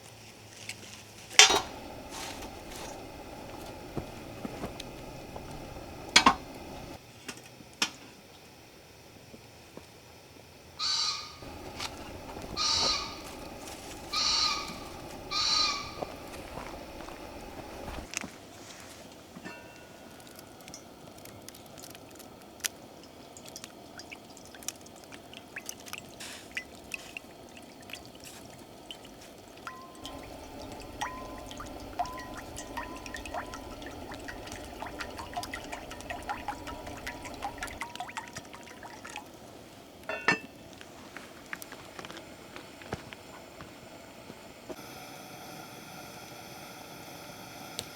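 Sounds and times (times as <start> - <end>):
cooking gear clinking: 1.3 - 7.0, 11.4 - 18.1, 26.5 - 38.8, 40.1 - 40.8
liquid pouring into container: 1.4 - 7.0, 11.4 - 18.1, 20.2 - 39.9.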